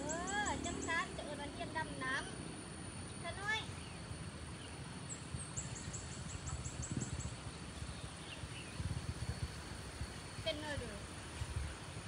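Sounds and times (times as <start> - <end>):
bird chirping: 3.1 - 8.9.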